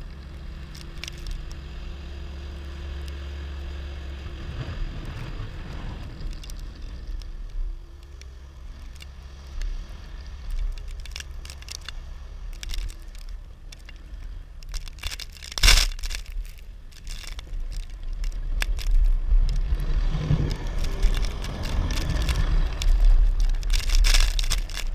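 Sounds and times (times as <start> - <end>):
plow blade scraping snow: 1.3 - 7.1, 14.8 - 24.9.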